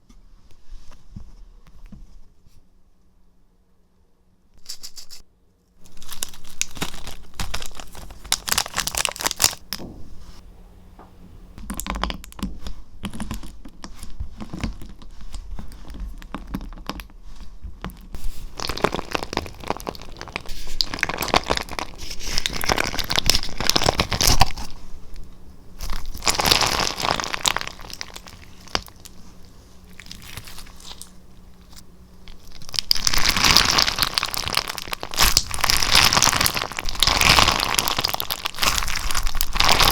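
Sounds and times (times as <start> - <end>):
slime crackling and crunching: 5.8 - 9.8, 17.8 - 39.9.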